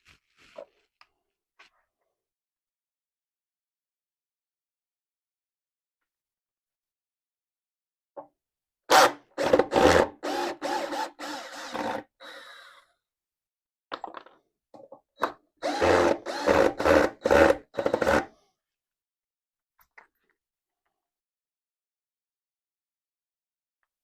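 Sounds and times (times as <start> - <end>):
power drill bursts into wood: 15.6 - 18.2.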